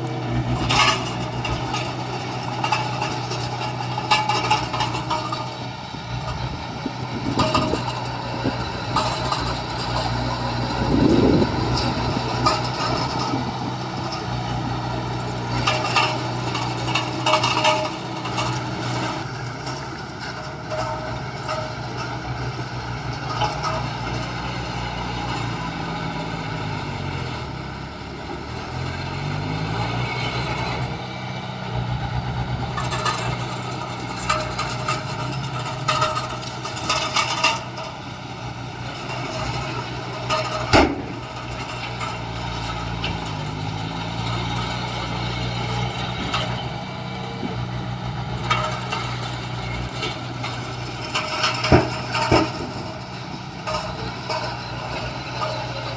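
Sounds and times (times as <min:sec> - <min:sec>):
metallic clanks: 0:00.0 - 0:26.4, 0:32.3 - 0:55.9
diesel construction machinery running: 0:00.0 - 0:55.9.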